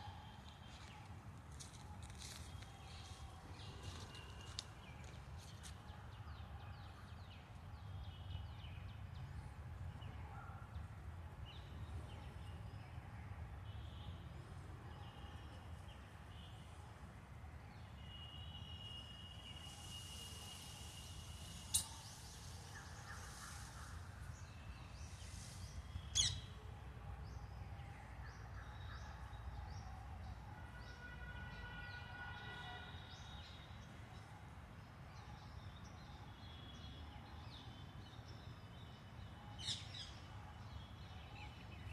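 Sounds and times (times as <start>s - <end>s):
faint bird chirping: 17.7s - 34.1s.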